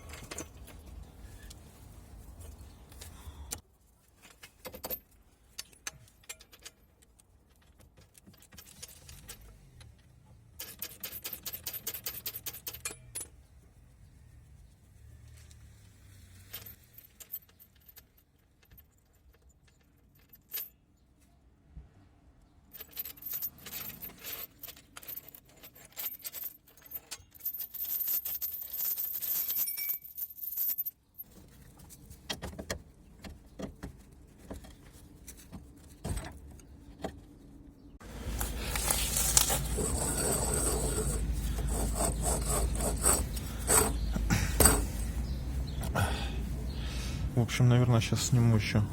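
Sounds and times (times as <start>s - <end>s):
metal tools clinking and scraping: 0.0s - 1.6s, 4.2s - 10.0s, 10.6s - 13.4s, 15.5s - 20.8s, 22.7s - 31.4s, 38.0s - 45.9s.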